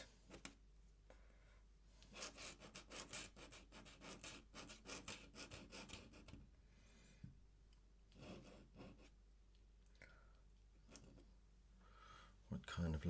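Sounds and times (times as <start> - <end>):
pen scratching on paper: 2.1 - 6.4, 8.2 - 9.2.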